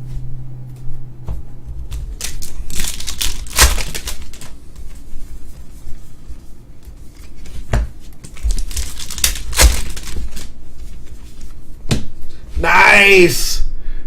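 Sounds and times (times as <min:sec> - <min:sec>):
card pack wrappers crinkling and tearing: 0:01.9 - 0:04.6, 0:08.3 - 0:10.6.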